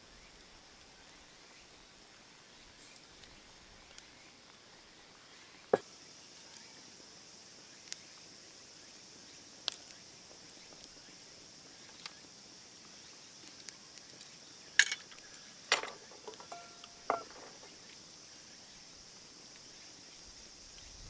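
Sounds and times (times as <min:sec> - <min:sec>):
insects chirring: 0:00.0 - 0:21.0
sharp clinks and knocks: 0:14.8 - 0:17.7.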